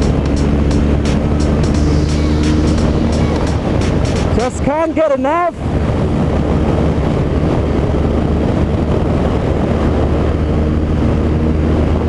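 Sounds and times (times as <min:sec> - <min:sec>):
motorcycle engine running: 0:00.0 - 0:07.5
wind noise on microphone: 0:00.0 - 0:12.0.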